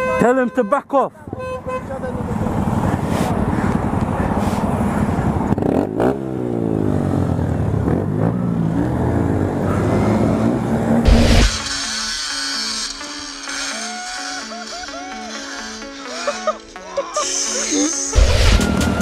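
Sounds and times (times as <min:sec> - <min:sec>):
dirt bike engine revving: 0:07.8 - 0:16.8.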